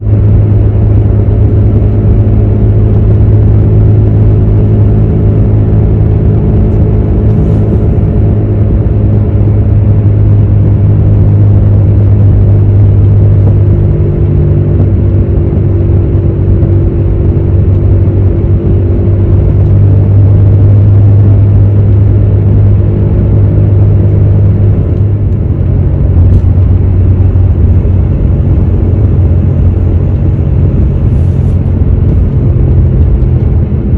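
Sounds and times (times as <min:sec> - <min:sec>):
road rumble: 0:00.0 - 0:33.9
wheel bearing humming: 0:00.0 - 0:33.9.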